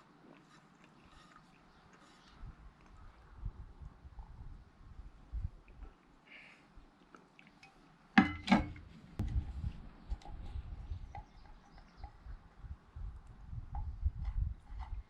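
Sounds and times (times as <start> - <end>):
metal cookware clanking: 8.2 - 8.8
low rumbling handling noise: 8.2 - 15.0.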